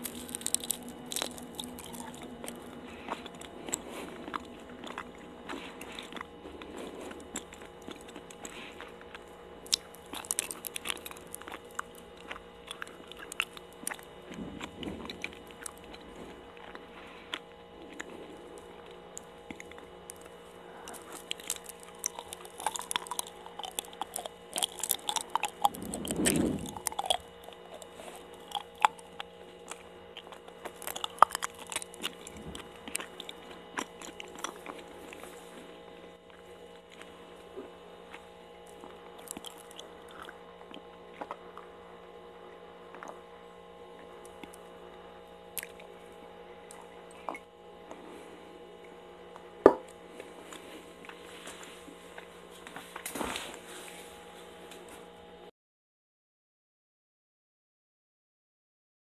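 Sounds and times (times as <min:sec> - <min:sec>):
wet chewing and mouth smacks: 0:00.0 - 0:35.4, 0:38.1 - 0:41.7, 0:45.6 - 0:46.0.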